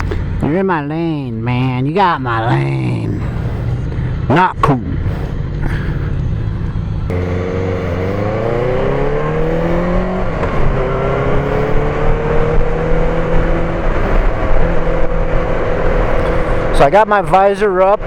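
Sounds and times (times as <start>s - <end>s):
motorcycle engine accelerating: 4.9s - 18.0s
wind noise: 7.1s - 17.3s.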